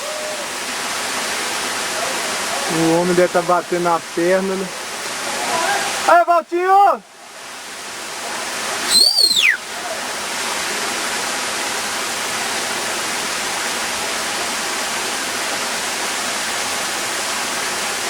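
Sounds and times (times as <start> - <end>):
waterfall rushing: 0.0 - 18.0
high-pitched whistle-like cry: 8.9 - 9.6.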